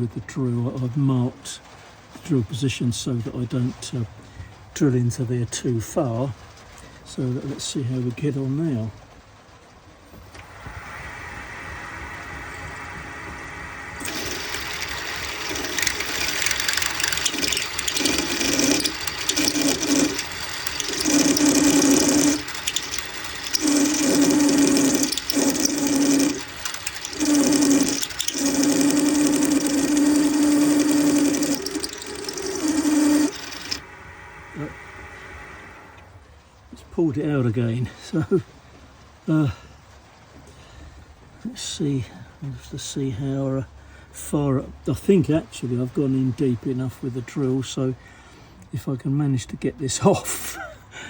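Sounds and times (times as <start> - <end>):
lathe running: 10.4 - 36.2
drill cutting with low squeal: 10.5 - 36.0.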